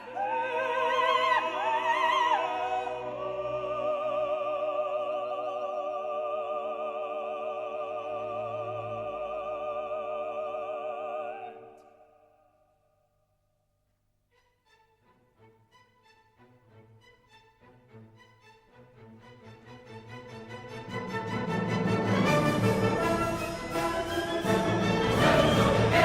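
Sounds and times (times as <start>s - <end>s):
operatic singing: 0.0s - 12.3s, 19.2s - 26.0s
orchestra playing: 14.6s - 26.0s.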